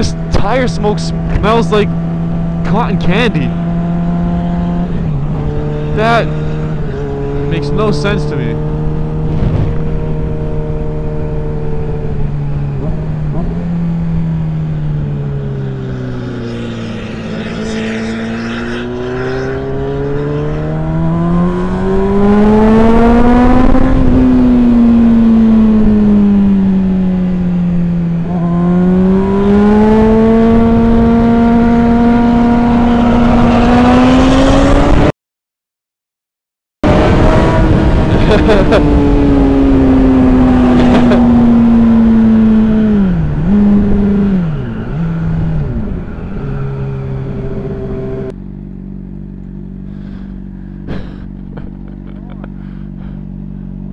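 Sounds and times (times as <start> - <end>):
motorcycle engine revving: 0.0 - 35.1, 36.8 - 53.9
wind rush: 8.9 - 11.6, 15.6 - 24.8.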